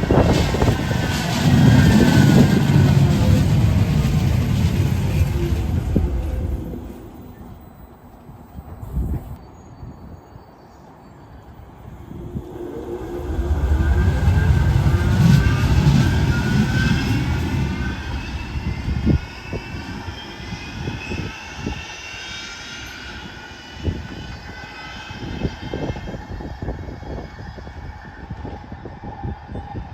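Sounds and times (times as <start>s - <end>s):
tram low rumble: 0.0s - 21.9s
tram motor whine: 0.0s - 29.8s.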